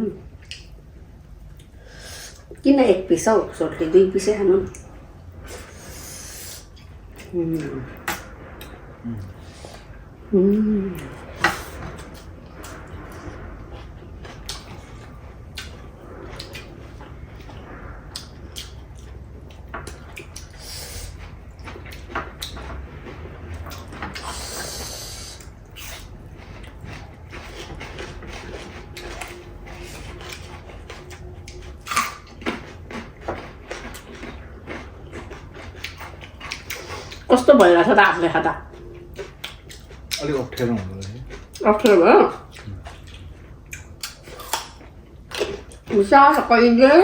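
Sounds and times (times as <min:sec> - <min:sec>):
chewing and mouth clicks: 0:00.4 - 0:00.8, 0:11.0 - 0:24.6, 0:25.2 - 0:37.3, 0:38.6 - 0:45.9.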